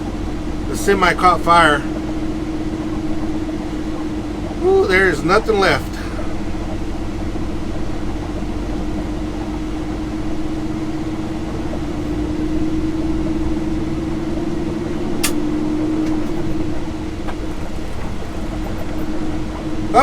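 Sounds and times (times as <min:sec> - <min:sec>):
diesel truck engine droning: 0:00.0 - 0:20.0
sharp click: 0:15.2 - 0:15.4.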